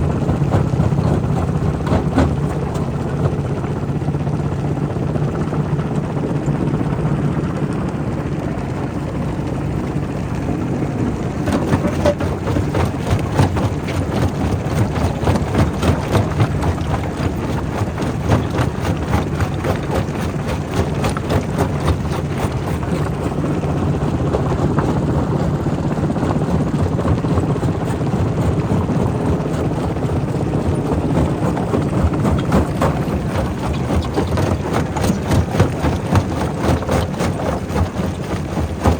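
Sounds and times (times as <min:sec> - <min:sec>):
rock crusher humming: 0:10.9 - 0:25.2, 0:27.0 - 0:38.9
rock knocking and cracking: 0:11.4 - 0:23.3.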